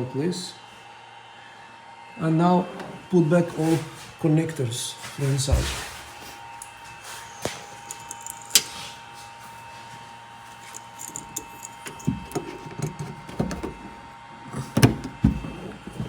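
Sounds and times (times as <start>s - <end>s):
parts rustling: 5.0s - 9.0s, 9.8s - 16.0s.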